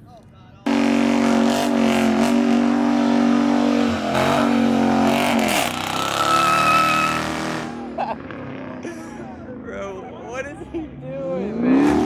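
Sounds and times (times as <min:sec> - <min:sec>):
car engine revving: 0:00.7 - 0:08.9, 0:11.2 - 0:12.0.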